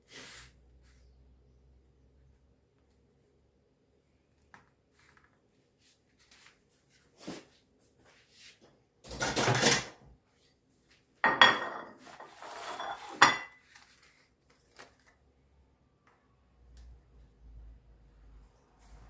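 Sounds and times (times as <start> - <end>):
metal pots and pans clattering: 9.0 - 10.0, 11.2 - 13.6.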